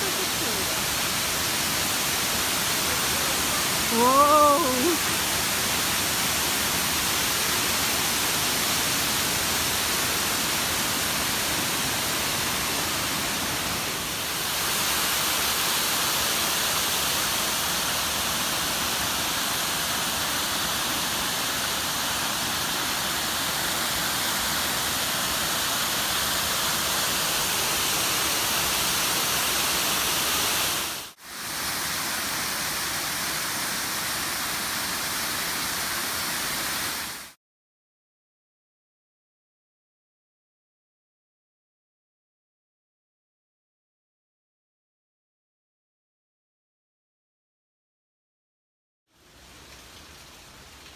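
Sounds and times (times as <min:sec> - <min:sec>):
waterfall rushing: 0:00.0 - 0:37.3.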